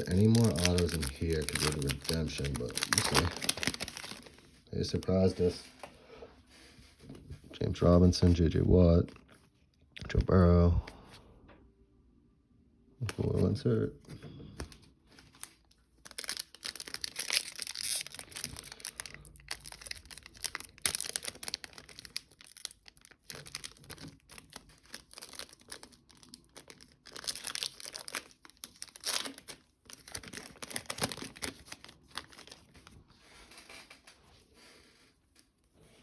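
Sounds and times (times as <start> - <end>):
foil wrappers tearing and crinkling: 0.0 - 5.3, 15.2 - 34.1.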